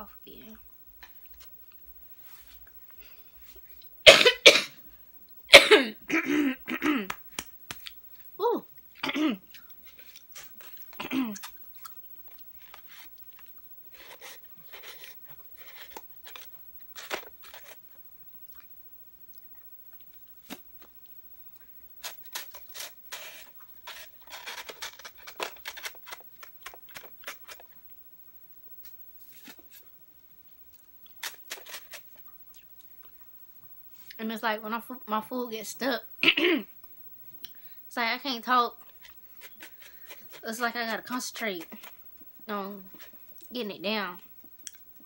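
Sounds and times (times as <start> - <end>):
person chewing crunchy food: 7.3 - 34.2, 38.8 - 40.4, 44.2 - 45.0.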